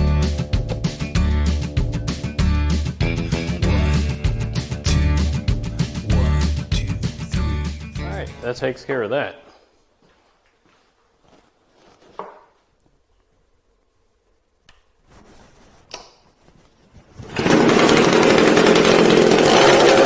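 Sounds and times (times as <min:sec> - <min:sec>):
saw engine running loudly: 0:03.1 - 0:06.7, 0:17.4 - 0:20.0.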